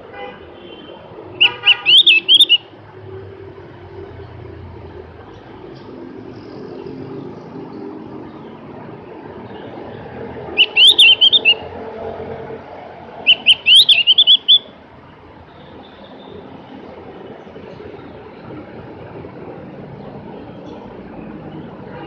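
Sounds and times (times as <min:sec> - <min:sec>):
bird twittering: 0:01.4 - 0:02.6, 0:10.5 - 0:11.7, 0:13.3 - 0:14.7.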